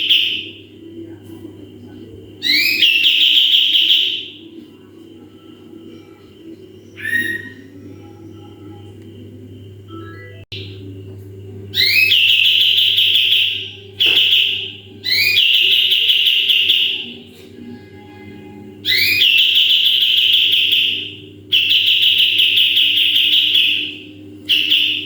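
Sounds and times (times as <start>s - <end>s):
songbird high whistled calls: 11.8s - 17.0s.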